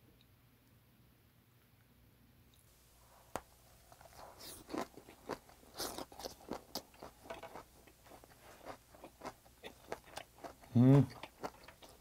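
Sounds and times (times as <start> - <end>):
wet crunching and smacking chewing: 3.4 - 12.0.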